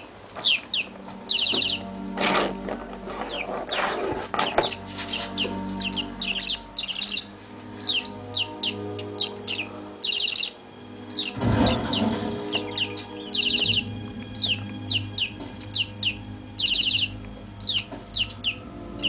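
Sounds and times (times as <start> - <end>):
budgerigar chirping: 0.0 - 19.0
noisy bursts: 0.0 - 19.0
television music: 0.0 - 19.0.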